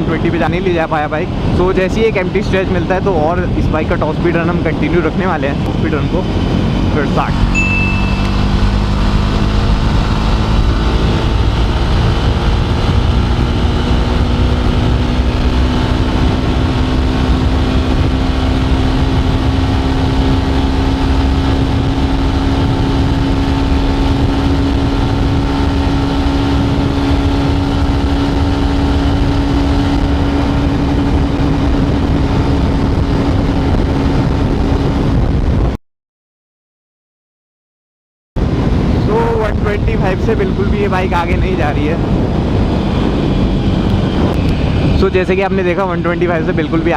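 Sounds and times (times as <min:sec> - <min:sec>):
wind rumble on microphone: 0:00.0 - 0:35.8, 0:38.4 - 0:46.9
motorbike engine pulling hard: 0:06.0 - 0:34.2.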